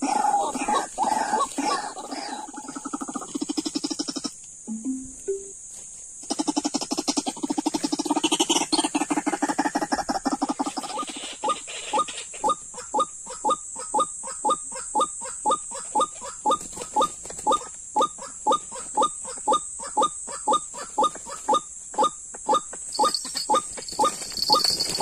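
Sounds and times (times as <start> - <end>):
steady high hiss: 3.5 - 6.1.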